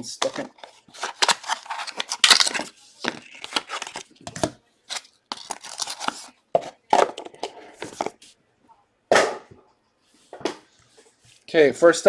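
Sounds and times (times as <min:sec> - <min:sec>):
card packaging ripping and crinkling: 0:00.2 - 0:06.4, 0:07.1 - 0:08.2.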